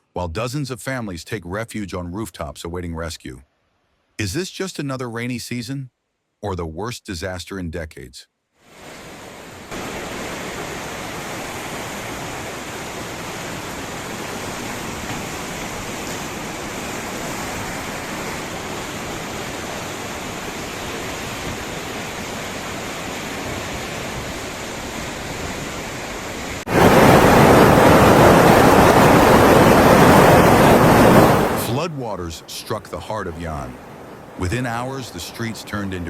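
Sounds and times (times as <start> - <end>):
rushing floodwater: 8.7 - 36.0.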